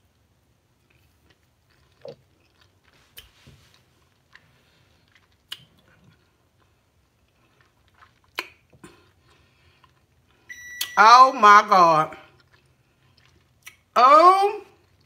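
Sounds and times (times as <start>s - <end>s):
person chewing with mouth clicks: 0.7s - 10.4s, 12.2s - 13.9s.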